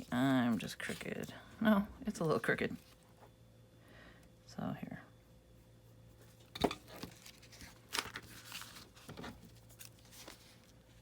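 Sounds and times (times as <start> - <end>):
magazine paper rustling: 0.0 - 1.3, 6.9 - 11.0.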